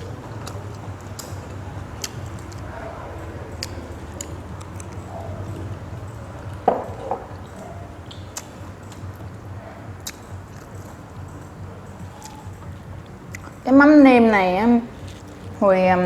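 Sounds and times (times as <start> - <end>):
mouth clicks and smacks: 0.0 - 13.7
person chewing food: 0.0 - 13.7, 14.8 - 15.6
steady low hum: 0.0 - 16.0
knock: 6.6 - 7.3.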